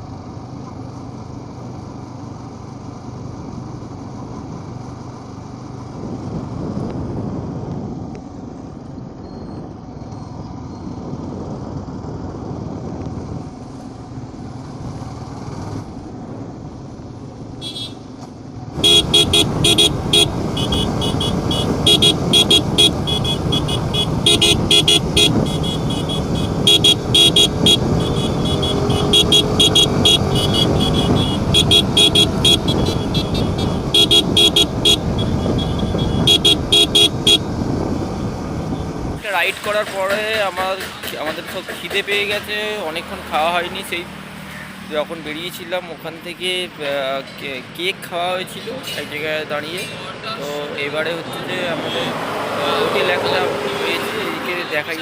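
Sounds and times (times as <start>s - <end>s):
road noise: 0.0s - 55.0s
traffic: 0.0s - 55.0s
motorcycle engine: 13.2s - 42.8s.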